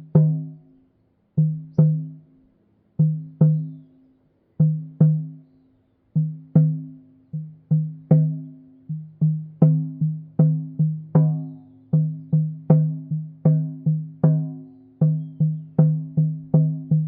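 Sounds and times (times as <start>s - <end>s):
pitched hand drum strokes: 1.4s - 2.4s, 6.2s - 17.0s.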